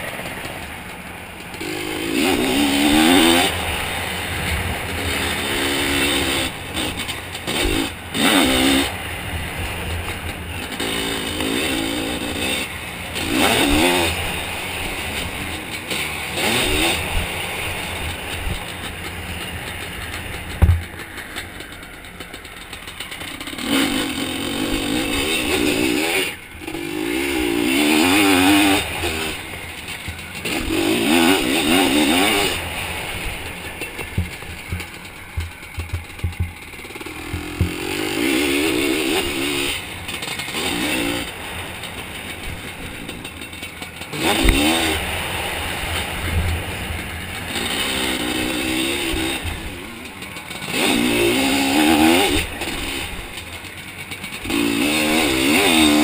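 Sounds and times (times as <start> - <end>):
two-stroke engine revving hard: 0.0 - 56.0
knocks and clatter: 18.0 - 24.2, 33.2 - 38.5.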